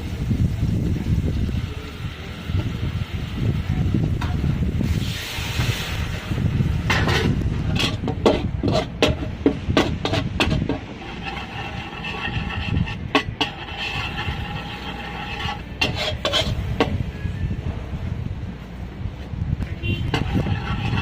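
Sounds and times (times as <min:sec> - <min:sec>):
steady low rumble: 0:00.0 - 0:21.0
short hiss: 0:04.8 - 0:06.2
utensils knocking on pans: 0:06.9 - 0:11.3.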